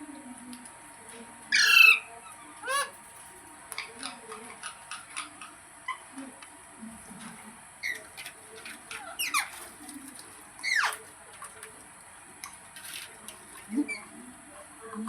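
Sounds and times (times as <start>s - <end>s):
parrot chirps: 1.5s - 3.0s, 7.8s - 9.6s, 10.6s - 11.0s
parrot squawks: 1.5s - 3.0s, 8.9s - 9.6s, 10.6s - 11.0s.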